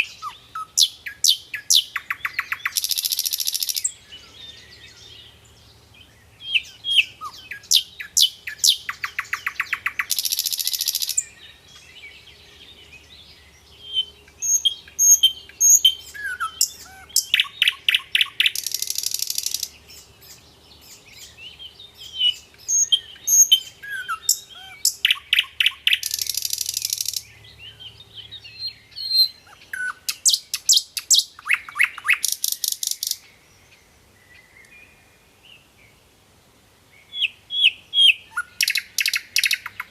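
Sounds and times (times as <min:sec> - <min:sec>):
soft bird twittering: 0:00.0 - 0:36.0, 0:37.0 - 0:39.9
songbird chirps and trills: 0:00.0 - 0:39.9.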